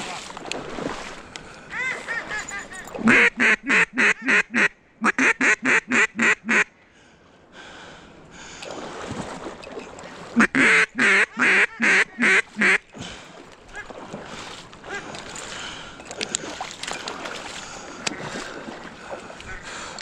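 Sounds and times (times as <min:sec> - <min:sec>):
duck call quacks: 0:03.1 - 0:06.7, 0:10.4 - 0:12.8.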